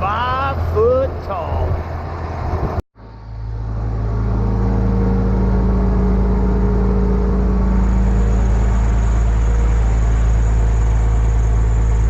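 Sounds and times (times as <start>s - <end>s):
locomotive engine rumbling: 0.0s - 12.0s.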